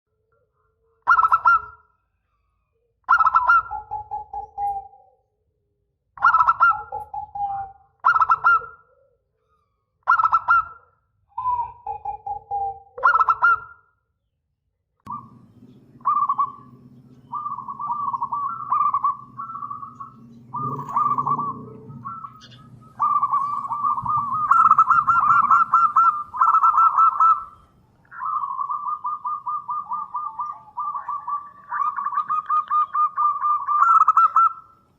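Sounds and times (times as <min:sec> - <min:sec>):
dove cooing: 0:01.0 - 0:01.8, 0:03.1 - 0:05.1, 0:06.2 - 0:10.8, 0:11.4 - 0:13.7, 0:15.1 - 0:34.9
steady low hum: 0:15.1 - 0:32.1
rapid trilled cooing: 0:15.1 - 0:34.7.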